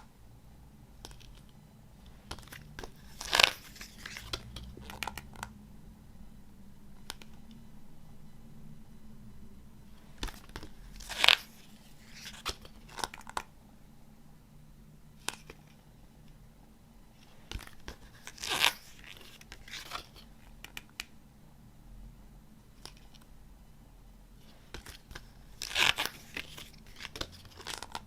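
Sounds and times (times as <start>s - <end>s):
cd packaging rustling: 2.3s - 5.3s, 24.7s - 28.0s.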